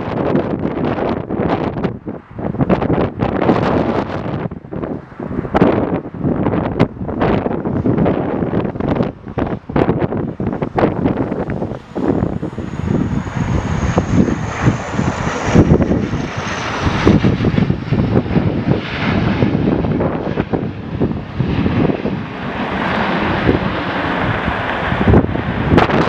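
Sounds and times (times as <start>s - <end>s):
airliner engines running: 0.0s - 26.0s
wind buffeting microphone: 0.0s - 26.0s.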